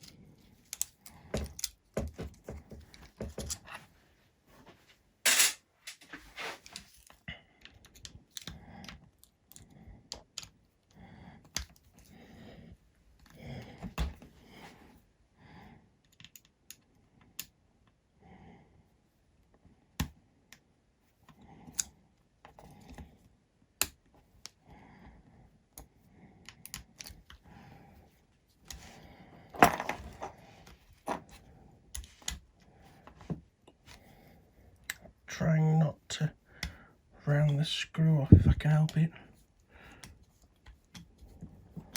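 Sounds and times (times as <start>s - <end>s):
hand tools clicking and tapping: 0.7s - 3.8s.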